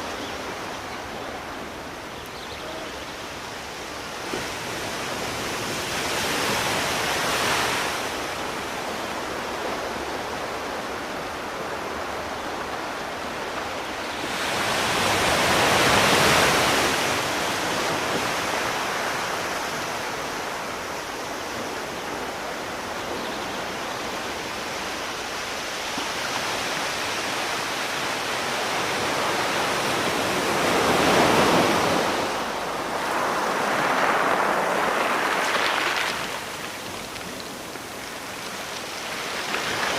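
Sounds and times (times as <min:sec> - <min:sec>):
sea waves washing ashore: 0:00.0 - 0:39.9.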